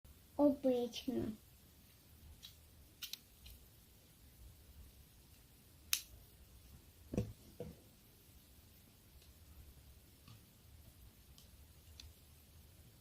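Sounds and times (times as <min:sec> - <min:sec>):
magnetic toy clicking: 0:02.4 - 0:03.6
magnetic toy sharp snap: 0:05.9 - 0:06.1.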